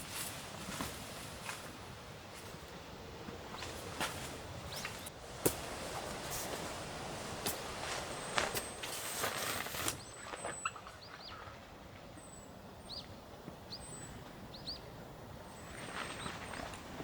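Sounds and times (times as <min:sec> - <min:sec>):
small birds chirping: 0:03.5 - 0:06.6, 0:07.4 - 0:11.6, 0:12.2 - 0:16.8.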